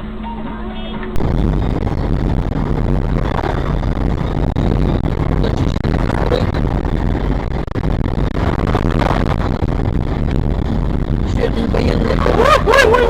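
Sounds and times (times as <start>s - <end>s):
vehicle engine rumble: 1.2s - 13.0s.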